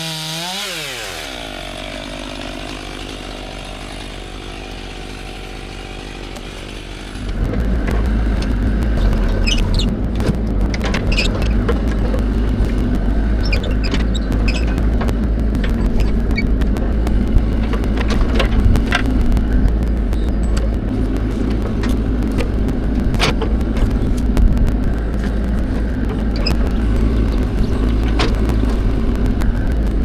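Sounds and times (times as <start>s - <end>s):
machinery engine rumbling: 5.9s - 30.0s
sharp clicks and cracks: 6.2s - 30.0s.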